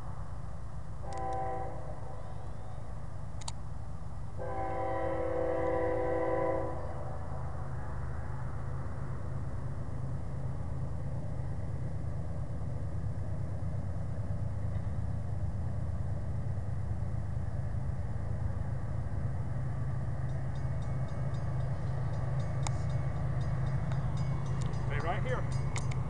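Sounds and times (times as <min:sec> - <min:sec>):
diesel locomotive engine rumbling: 0:00.0 - 0:26.0.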